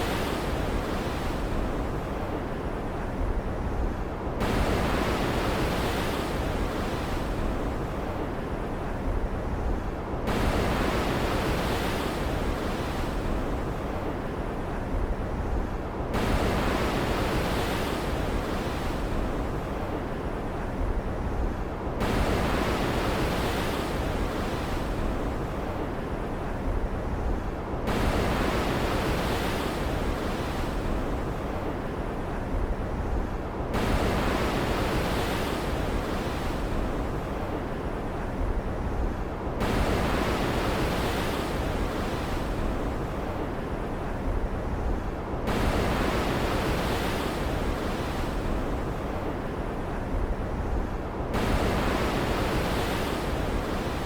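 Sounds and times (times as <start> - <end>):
ocean surf: 0.0 - 54.0.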